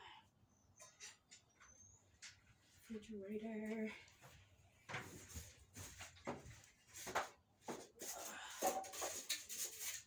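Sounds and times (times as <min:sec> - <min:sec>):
scrapes and knocks of handwork: 0:04.2 - 0:10.0.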